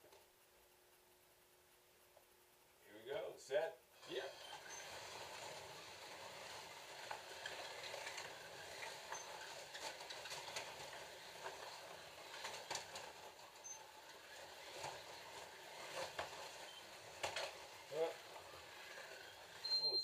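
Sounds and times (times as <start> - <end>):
clicks and rattles of cars on track: 4.3 - 19.7.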